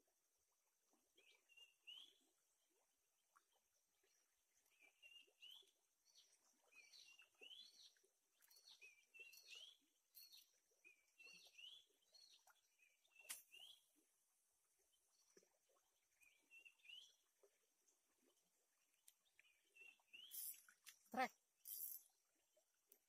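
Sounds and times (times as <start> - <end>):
faint rising bird chirps: 6.7 - 13.8, 19.8 - 20.6.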